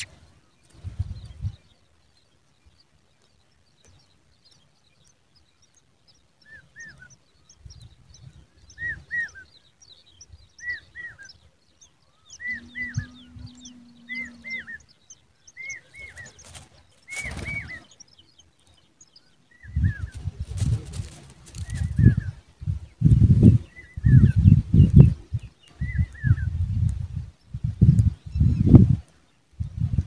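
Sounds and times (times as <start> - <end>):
birds chirping: 0.0 - 30.0
high bird twittering: 4.5 - 22.4.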